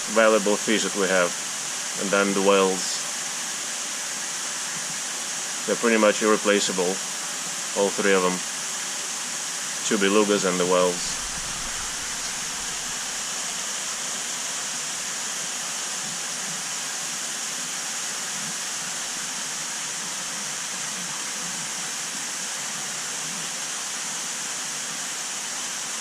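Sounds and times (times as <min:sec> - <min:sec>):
running splashing water: 0:10.0 - 0:15.6.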